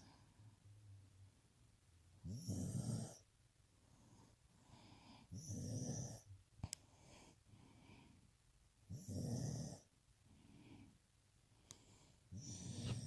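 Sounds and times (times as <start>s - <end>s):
puppy snoring: 2.2s - 3.3s, 5.2s - 6.4s, 8.9s - 9.9s, 12.3s - 13.0s.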